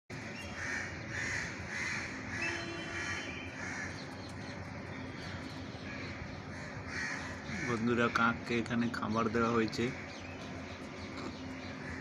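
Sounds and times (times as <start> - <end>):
crow cawing: 0.4 - 4.0, 5.8 - 7.9.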